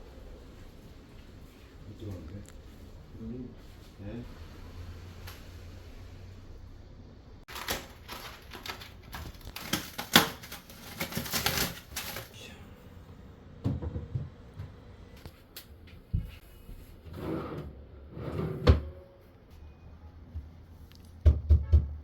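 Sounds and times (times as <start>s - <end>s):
hard objects clattering: 7.5s - 12.3s.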